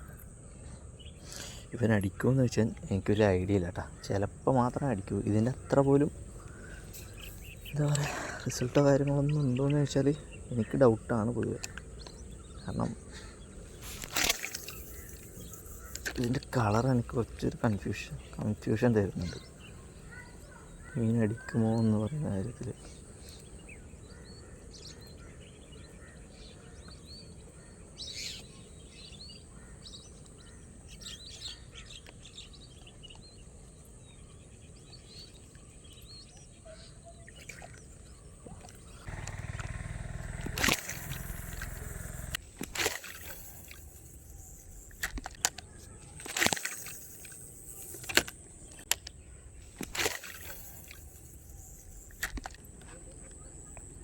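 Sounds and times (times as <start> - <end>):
birds chirping: 0.0 - 54.0
high-pitched insect drone: 39.1 - 45.0
sharp clicks and knocks: 44.9 - 46.7.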